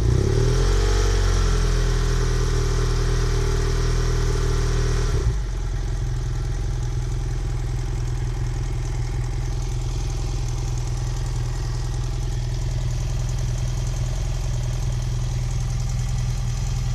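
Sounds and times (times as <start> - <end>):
engine rattling: 0.0 - 16.9
motorcycle engine idling: 5.3 - 16.9.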